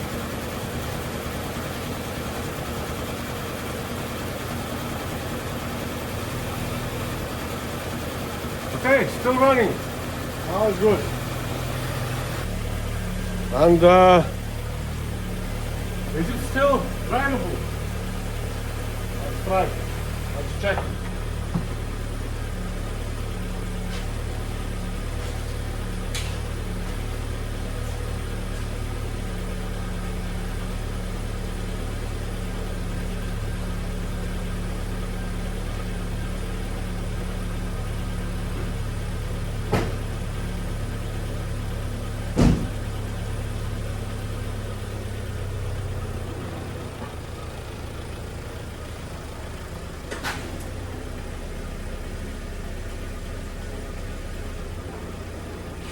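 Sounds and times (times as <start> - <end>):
car engine idling: 0.0 - 55.9
sharp knocks: 42.4 - 42.9.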